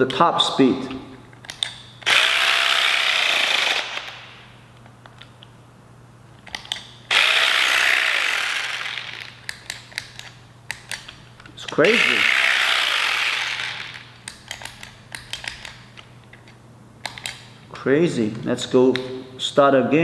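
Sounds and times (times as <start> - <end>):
massage gun motor hammering: 2.0 - 4.3, 7.1 - 11.0, 11.7 - 15.5.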